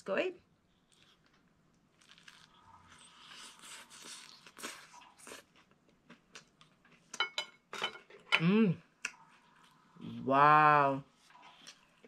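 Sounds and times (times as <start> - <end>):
chewing crackles: 0.8 - 7.2
crisp crunches of biting: 2.0 - 2.6.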